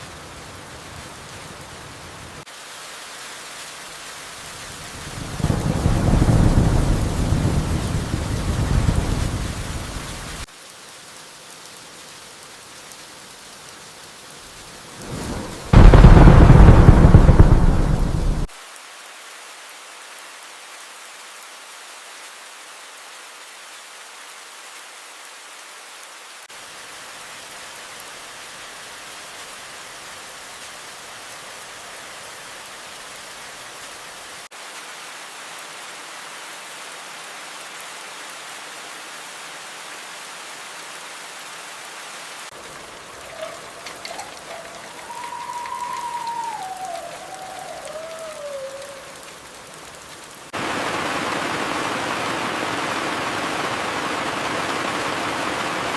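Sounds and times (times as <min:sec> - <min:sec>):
steady rain: 0:00.0 - 0:55.9
thunder crash: 0:05.4 - 0:09.8, 0:15.0 - 0:18.5.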